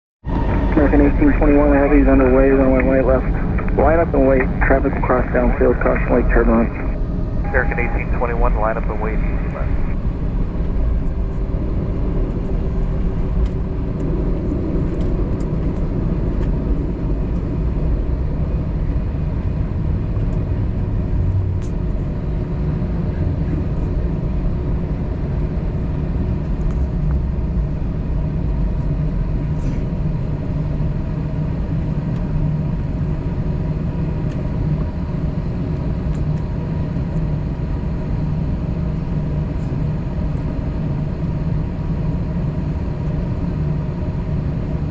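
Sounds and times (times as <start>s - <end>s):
airliner cabin low rumble: 0.2s - 44.9s
faint steady tone: 0.7s - 10.0s.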